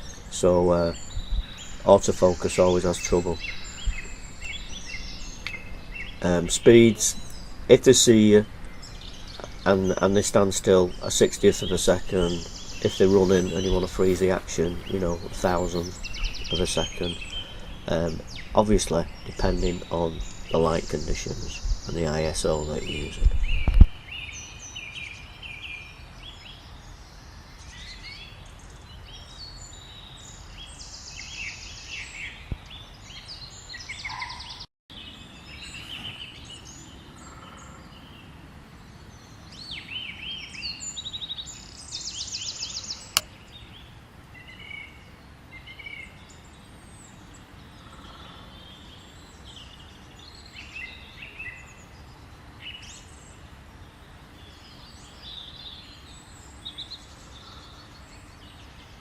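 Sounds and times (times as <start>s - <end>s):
bird trill: 0.0s - 26.6s, 33.1s - 38.3s
low background noise: 0.0s - 34.2s, 34.9s - 59.0s
small birds singing and calling: 0.0s - 59.0s.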